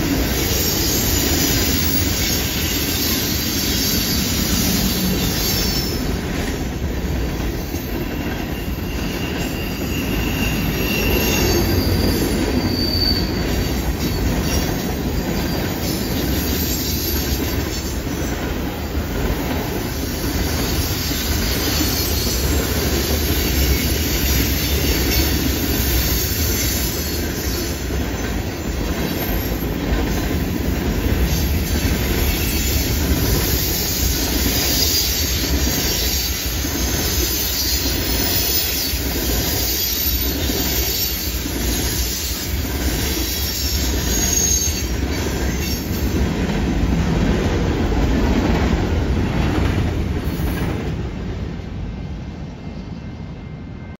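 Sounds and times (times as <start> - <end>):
train wheels on rails: 0.0 - 53.9
high wheel squeal: 0.3 - 6.2, 7.4 - 18.3, 19.9 - 29.8, 31.1 - 46.2.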